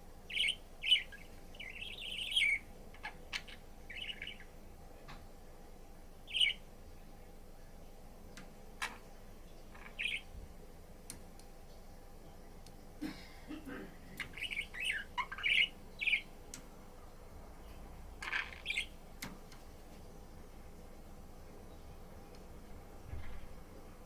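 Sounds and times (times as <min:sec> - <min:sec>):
budgerigar chirping: 0:00.3 - 0:04.5, 0:06.3 - 0:06.6, 0:09.8 - 0:10.3, 0:14.3 - 0:16.3, 0:18.2 - 0:19.0
faint clicks: 0:11.0 - 0:11.8, 0:12.6 - 0:12.8.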